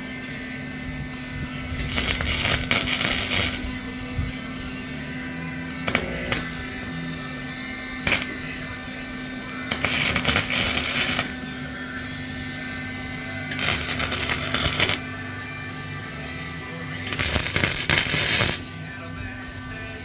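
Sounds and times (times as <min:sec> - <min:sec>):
harsh rasping noise on metal: 0:01.8 - 0:03.7, 0:05.9 - 0:06.6, 0:08.0 - 0:08.4, 0:09.6 - 0:11.3, 0:13.5 - 0:15.0, 0:17.1 - 0:18.6.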